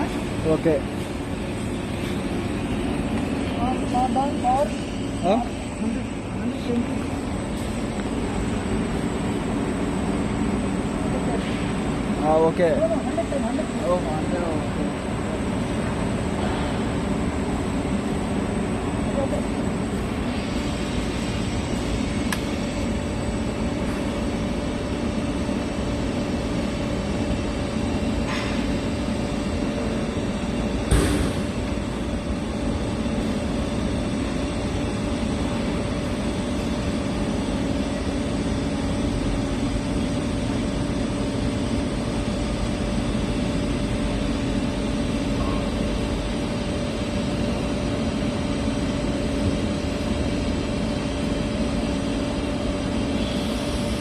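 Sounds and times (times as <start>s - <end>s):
machine hum with hiss: 0.0s - 54.0s
sharp knock: 30.9s - 31.5s.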